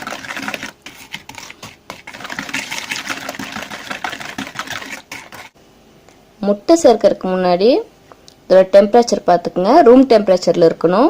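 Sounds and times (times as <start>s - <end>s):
utensil scraping bowl: 0.0s - 5.6s.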